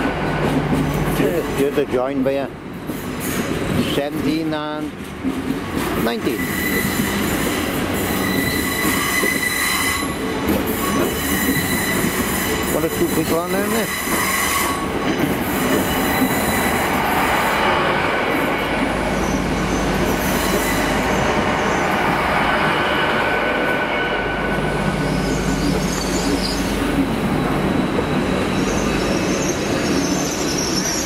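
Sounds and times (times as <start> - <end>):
train wheels rumbling: 0.0 - 31.0
wheel squeal on rails: 6.2 - 17.6, 18.4 - 22.2, 23.1 - 31.0.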